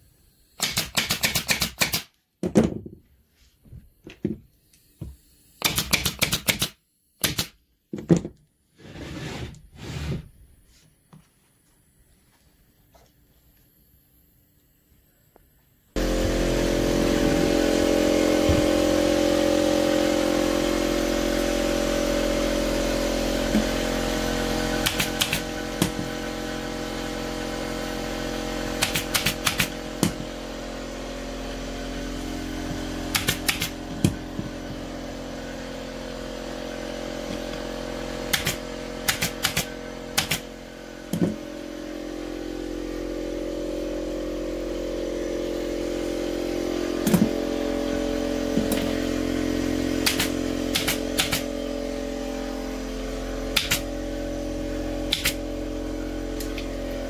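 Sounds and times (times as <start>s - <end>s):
sharp clicks: 5.6s - 7.6s, 50.0s - 51.5s
motor humming: 16.0s - 57.0s.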